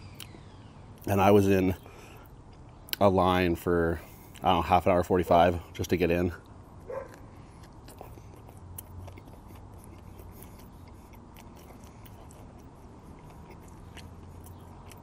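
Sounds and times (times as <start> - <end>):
person chewing: 6.8 - 15.0
wet mouth clicks and smacks: 7.6 - 15.0.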